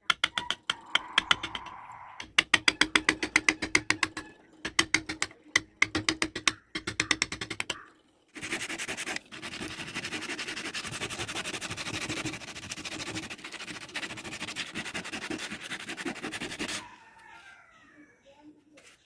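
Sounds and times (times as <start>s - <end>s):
rasping wood sanding strokes: 8.4s - 16.9s.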